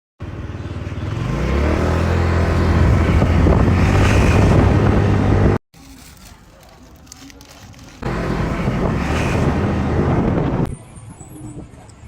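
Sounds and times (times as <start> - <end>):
motorcycle engine running: 0.2 - 5.6, 8.0 - 10.7.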